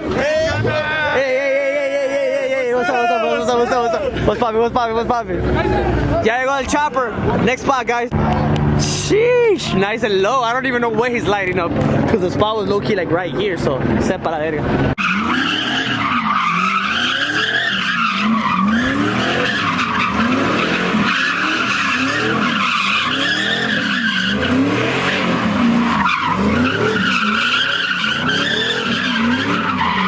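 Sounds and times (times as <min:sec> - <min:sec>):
car engine revving: 0:07.1 - 0:30.0
tyres squealing: 0:15.0 - 0:30.0.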